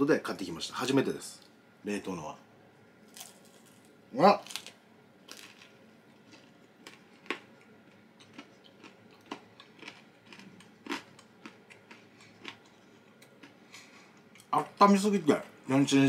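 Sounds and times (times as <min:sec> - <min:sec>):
mouth crunching: 0:05.3 - 0:14.5.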